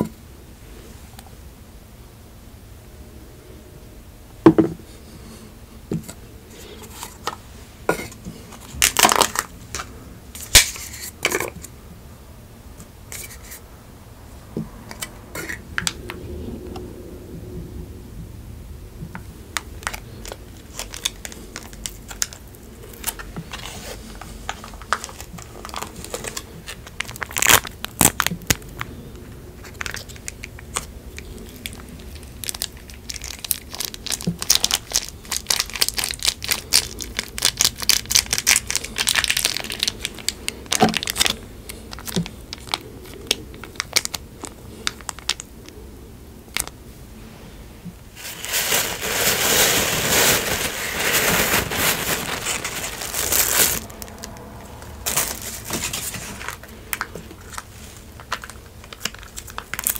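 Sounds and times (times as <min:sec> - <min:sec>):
paper wrapper crinkling and tearing: 0:08.5 - 0:11.1, 0:19.6 - 0:45.5, 0:48.2 - 0:59.9.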